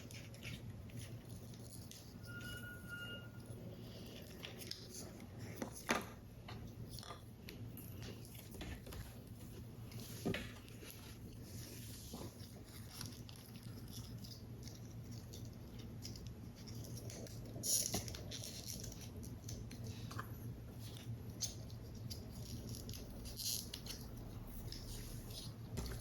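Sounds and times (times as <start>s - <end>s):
paper rustling: 3.8s - 26.0s.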